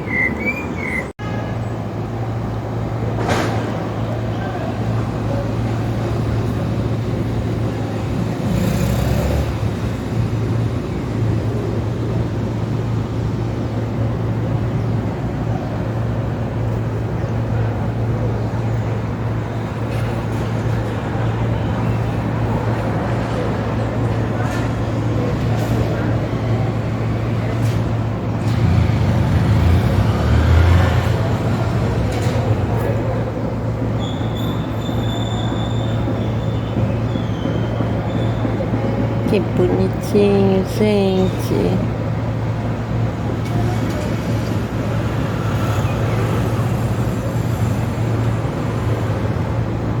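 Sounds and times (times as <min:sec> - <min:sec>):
road traffic rumble: 0:00.0 - 0:50.0
heavy vehicle passing: 0:22.5 - 0:33.8.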